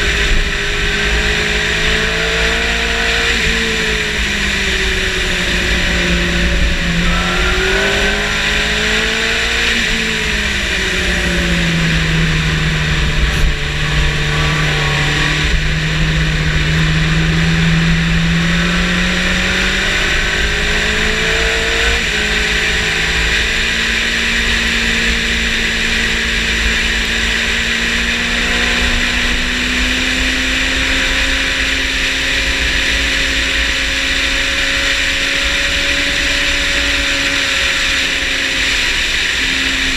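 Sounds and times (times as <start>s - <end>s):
motorcycle engine at speed: 0.0s - 39.9s
wind rush: 2.9s - 27.5s.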